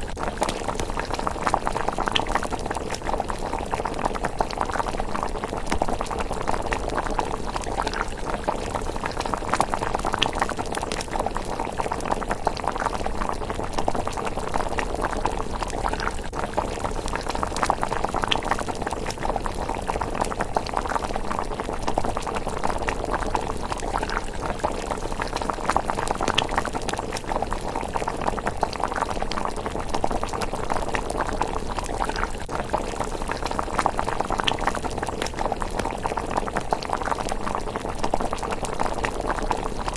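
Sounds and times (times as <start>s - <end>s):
porridge bubbling in a pot: 0.0s - 39.9s.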